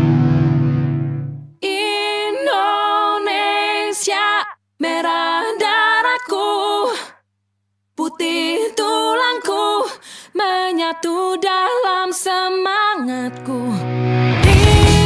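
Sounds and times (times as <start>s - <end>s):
voices singing unaccompanied: 1.6s - 7.0s, 8.0s - 13.1s.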